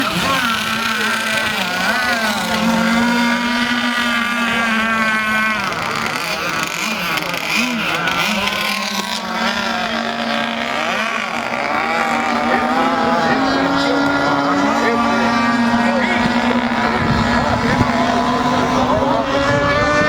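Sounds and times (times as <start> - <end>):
model boat motors on water: 0.0 - 20.0.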